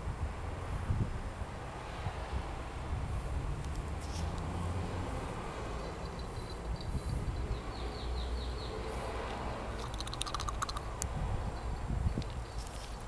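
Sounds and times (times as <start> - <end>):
small birds chirping: 5.8 - 9.0
rattle of sharp clicks: 9.8 - 10.9.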